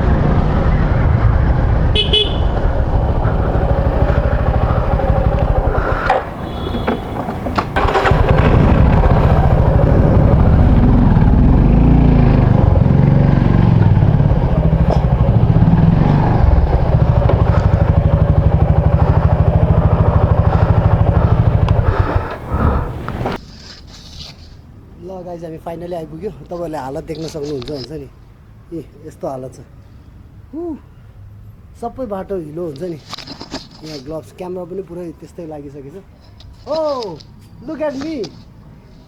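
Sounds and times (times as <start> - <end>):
motorcycle engine running: 0.0 - 23.4
horn beeps: 1.9 - 5.4, 6.4 - 8.1.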